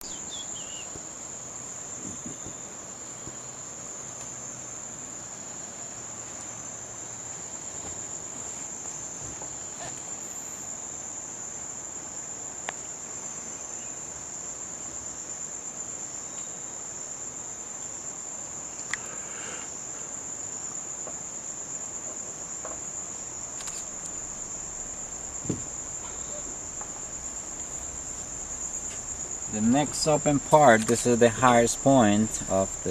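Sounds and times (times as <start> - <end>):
insect chorus droning: 0.0 - 32.9
faint knocks: 25.3 - 30.0.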